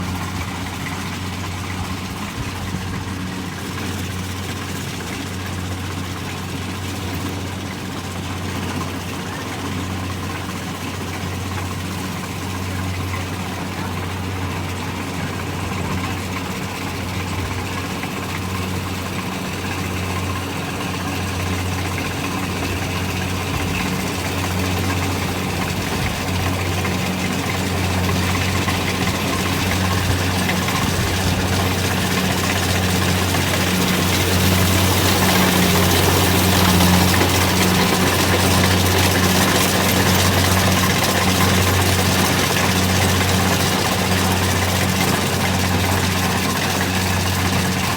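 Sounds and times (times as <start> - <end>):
diesel engine humming: 13.2 - 47.9.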